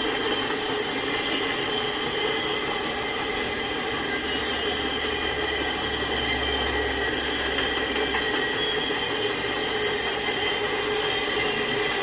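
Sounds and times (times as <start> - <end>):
faint high steady tones: 0.0 - 12.0
train wheels rumbling and clattering: 0.0 - 12.0.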